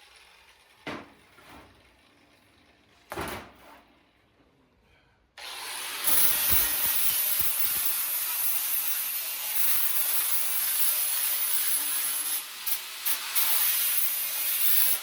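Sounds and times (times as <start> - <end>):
power tool running with harsh hiss: 5.4 - 15.0.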